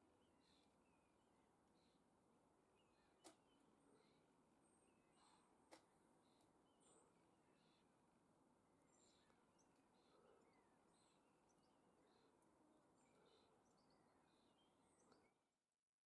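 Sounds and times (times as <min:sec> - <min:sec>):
faint birds chirping: 0:00.0 - 0:15.6.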